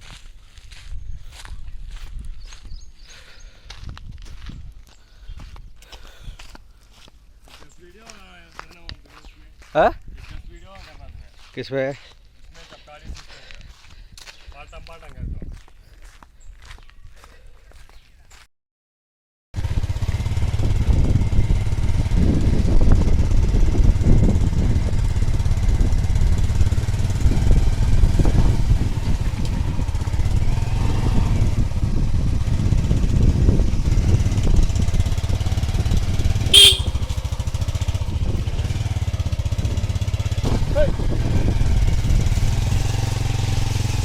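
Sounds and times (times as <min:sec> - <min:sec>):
wind on microphone: 0:00.6 - 0:02.9, 0:03.8 - 0:05.8, 0:20.4 - 0:37.1, 0:40.4 - 0:42.9.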